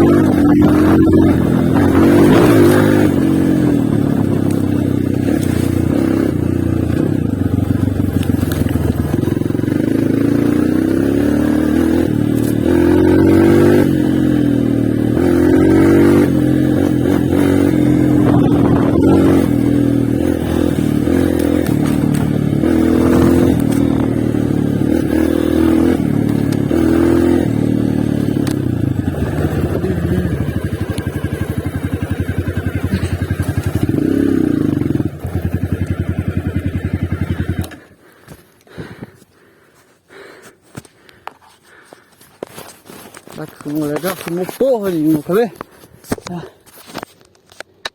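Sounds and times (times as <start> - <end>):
motorcycle engine revving and idling: 0.0 - 39.2, 40.1 - 47.1.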